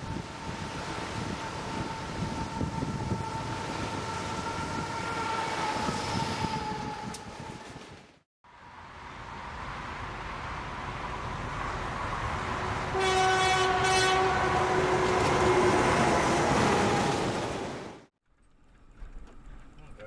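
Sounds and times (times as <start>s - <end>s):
train rumbling: 0.0s - 20.0s
locomotive horn: 0.1s - 8.0s, 12.4s - 17.6s.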